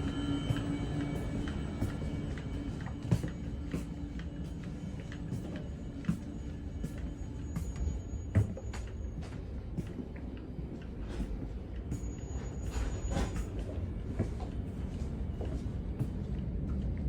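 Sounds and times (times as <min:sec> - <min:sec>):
train clicks and rattles: 0:00.0 - 0:17.0
train low rumble: 0:00.0 - 0:17.0.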